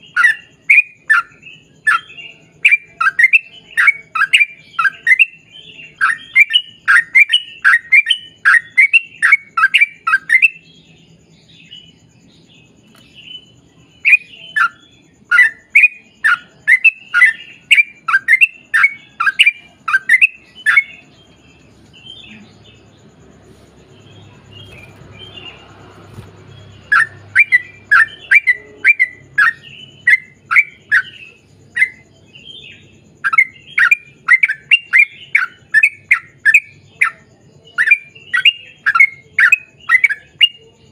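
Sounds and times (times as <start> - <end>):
bird singing rapid chirps: 0.0 - 40.9
bird chatter: 11.6 - 37.2.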